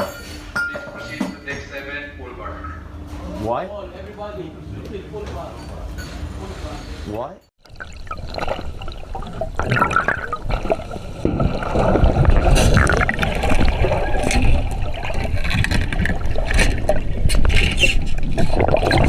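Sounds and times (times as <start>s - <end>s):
water rushing and sloshing: 7.6s - 19.0s.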